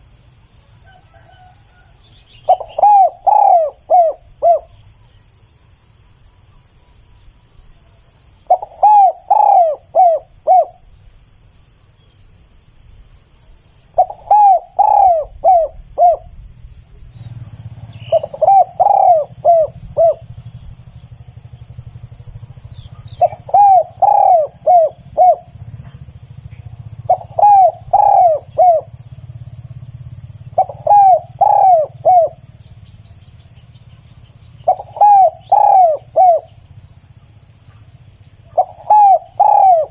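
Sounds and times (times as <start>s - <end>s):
insects pulsing: 0.0s - 39.9s
dove cooing: 0.8s - 4.9s, 8.4s - 10.8s, 13.9s - 32.6s, 34.6s - 36.7s, 38.3s - 39.9s.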